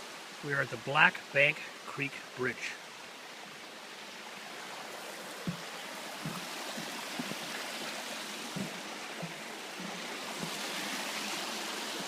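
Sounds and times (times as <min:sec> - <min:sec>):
creek water rushing: 0:00.0 - 0:12.0
soft low thumps: 0:05.4 - 0:07.4, 0:08.4 - 0:10.8.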